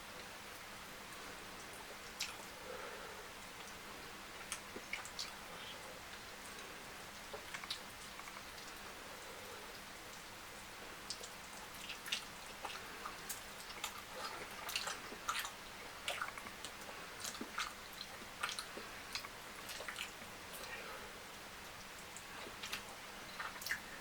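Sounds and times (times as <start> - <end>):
faint steady hiss: 0.0 - 24.0
lip smacks and mouth clicks: 2.1 - 2.5, 4.4 - 5.4, 6.5 - 8.8, 11.1 - 20.8, 21.9 - 23.9
wet chewing: 7.3 - 8.9, 11.1 - 20.9, 22.0 - 24.0.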